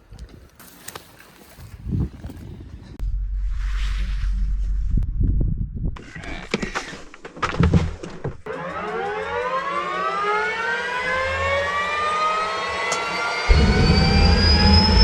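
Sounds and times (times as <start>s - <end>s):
helicopter turbine whine: 8.5s - 15.0s.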